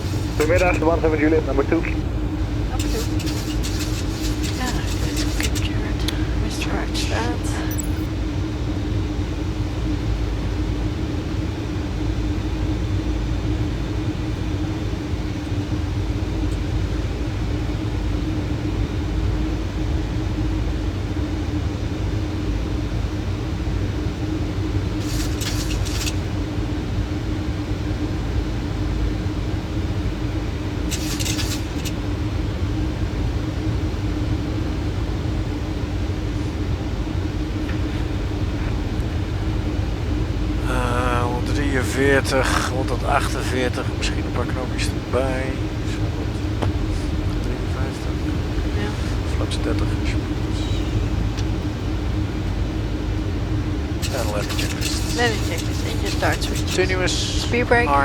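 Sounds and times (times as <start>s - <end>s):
hissy crackles: 0.0s - 1.9s, 2.7s - 7.8s, 25.0s - 26.3s, 30.9s - 32.0s, 54.0s - 58.0s
airflow and engine rumble: 0.0s - 58.0s.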